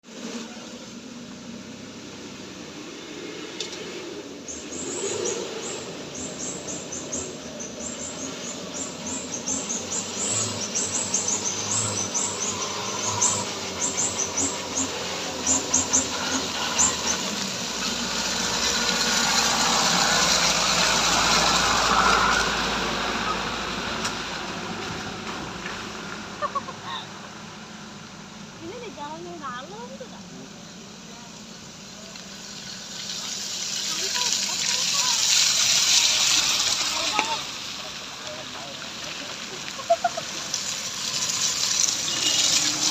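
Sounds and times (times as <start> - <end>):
vehicle passing: 2.1 - 31.4, 32.0 - 42.9
birds chirping: 2.8 - 20.2.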